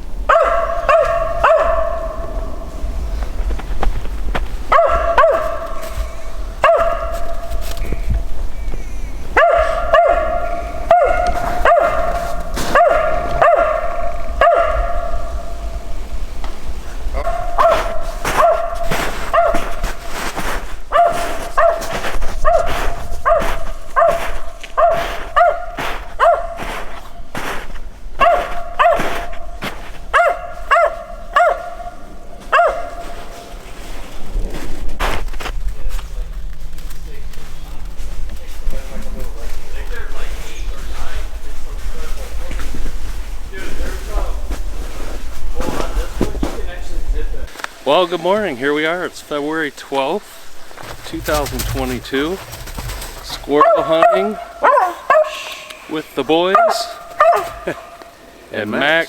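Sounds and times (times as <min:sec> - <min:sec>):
dog barking: 0:00.2 - 0:03.1, 0:04.6 - 0:08.5, 0:09.3 - 0:15.8, 0:17.2 - 0:33.8, 0:52.4 - 0:58.2.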